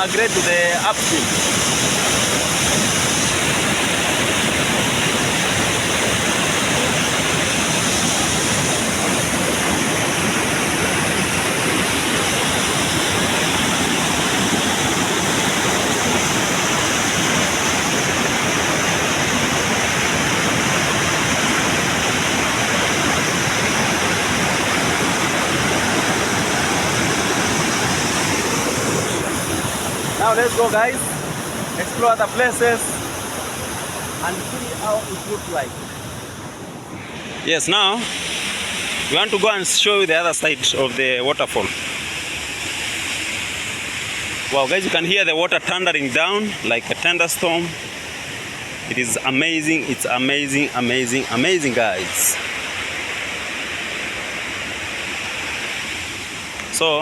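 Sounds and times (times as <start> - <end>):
large waterfall thundering: 0.0 - 57.0.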